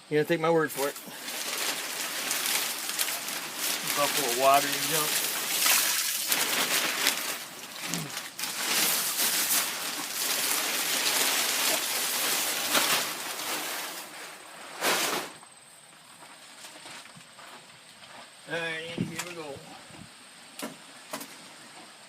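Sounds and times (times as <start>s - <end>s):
plastic tarp rustling and crinkling: 0.1s - 15.6s.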